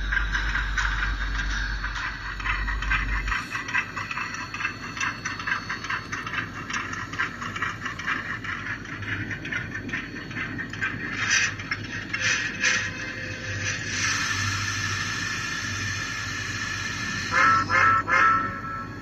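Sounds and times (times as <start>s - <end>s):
deep low hum: 0.0s - 6.2s
model train wheels rattling: 0.0s - 18.7s.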